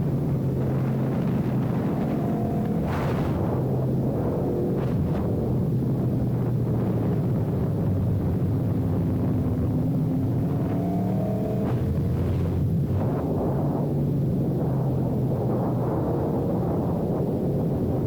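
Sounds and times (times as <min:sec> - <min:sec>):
motorcycle engine running: 0:00.0 - 0:05.0
wind rush: 0:00.0 - 0:18.0.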